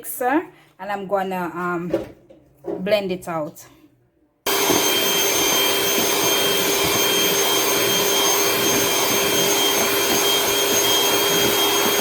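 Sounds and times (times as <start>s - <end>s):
electric mixer whirring: 4.5s - 12.0s.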